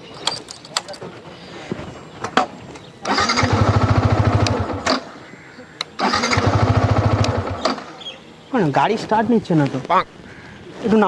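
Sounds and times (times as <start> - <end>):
motorcycle starter cranking: 0.1 - 1.0, 3.0 - 5.2, 6.0 - 8.0
sharp clicks: 4.3 - 5.1, 5.8 - 7.9.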